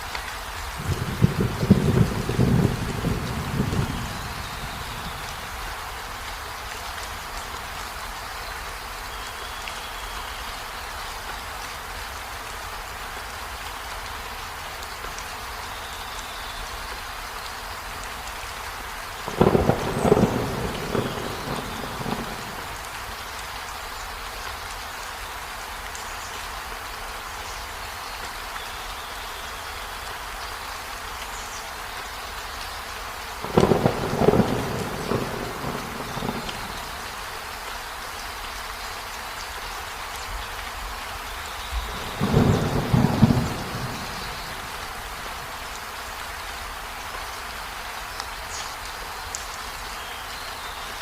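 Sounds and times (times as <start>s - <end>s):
steady rain falling: 0.0s - 51.0s
thunder rumbling: 0.8s - 5.6s, 19.3s - 22.9s, 33.4s - 37.1s, 41.8s - 45.5s.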